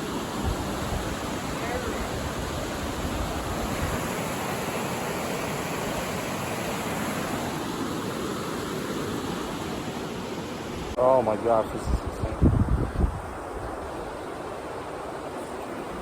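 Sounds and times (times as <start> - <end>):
water rushing down a spillway: 0.0 - 11.4.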